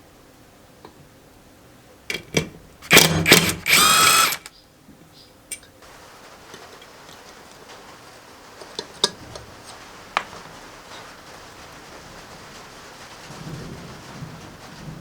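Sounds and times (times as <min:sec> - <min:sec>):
sharp metallic clicks: 0:02.8 - 0:04.5
steady hiss: 0:05.6 - 0:15.0.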